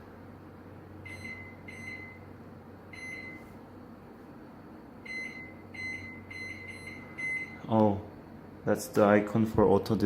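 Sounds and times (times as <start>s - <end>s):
microwave keypad beeps: 1.0s - 2.3s, 2.9s - 3.5s, 5.0s - 7.6s.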